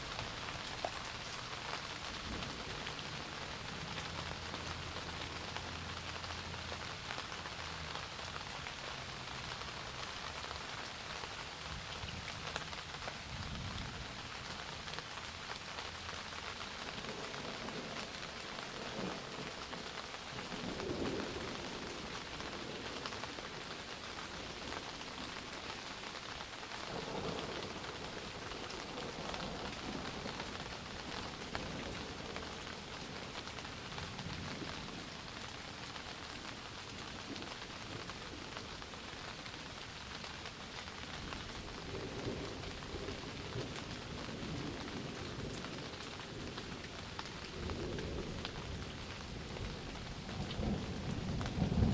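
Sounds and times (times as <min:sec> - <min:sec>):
heavy rain pattering: 0:00.0 - 0:51.9
distant thunder rumbling: 0:41.6 - 0:51.9.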